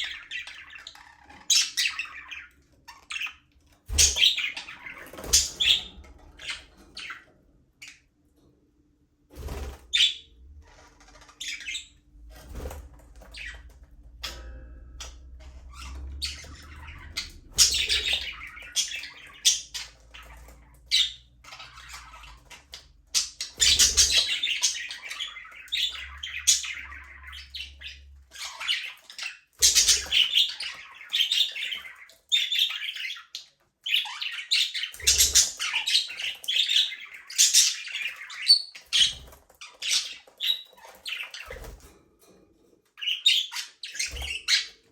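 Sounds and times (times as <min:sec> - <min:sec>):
budgerigars chattering: 0:00.0 - 0:07.2, 0:11.0 - 0:12.0, 0:15.0 - 0:41.8.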